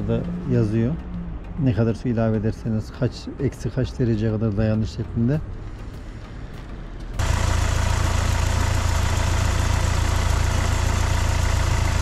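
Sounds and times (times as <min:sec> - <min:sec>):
diesel engine idling: 0:05.6 - 0:12.0.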